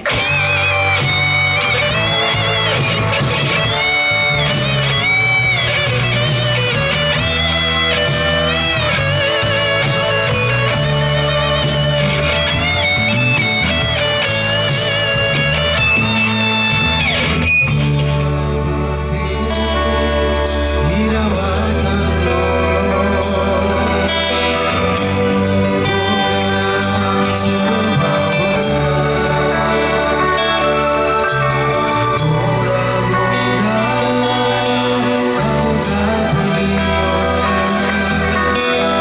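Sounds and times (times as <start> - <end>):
drum beat: 0.0 - 18.0
bass guitar: 0.0 - 39.0
lead guitar melody: 0.0 - 39.0.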